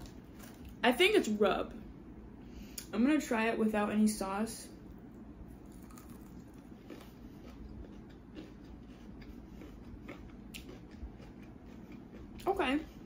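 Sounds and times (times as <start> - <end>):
chewing clicks: 5.7 - 12.5.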